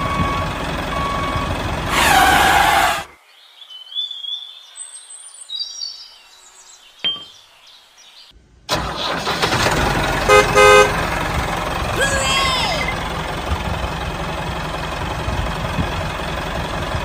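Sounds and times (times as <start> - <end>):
tractor engine running: 0.0 - 3.1, 8.4 - 17.0
horn honks: 1.1 - 3.1, 10.2 - 11.2
faint bird chirps: 3.1 - 8.3.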